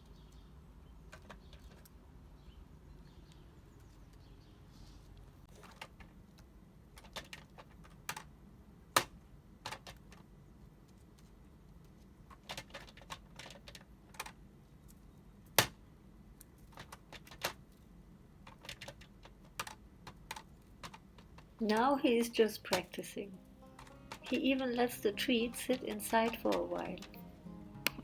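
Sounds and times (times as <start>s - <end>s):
crow pecking plastic box: 5.5s - 10.3s, 11.8s - 14.4s, 16.4s - 23.0s.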